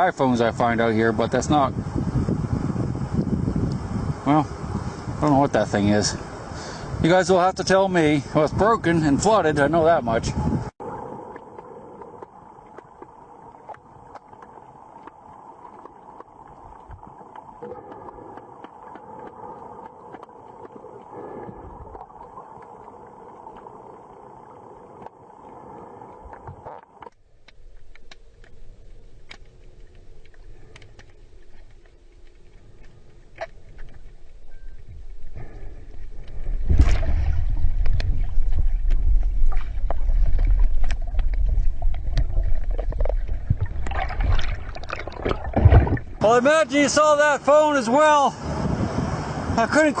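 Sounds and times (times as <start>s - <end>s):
muffled river water: 0.0s - 50.0s
low underwater rumble: 8.6s - 46.2s
small clicks and ticks: 11.3s - 36.4s.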